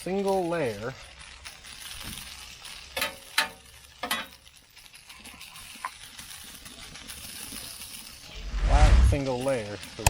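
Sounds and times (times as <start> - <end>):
potatoes sizzling in hot oil: 0.0 - 10.0
spatula clacking on steel griddle: 2.7 - 6.0.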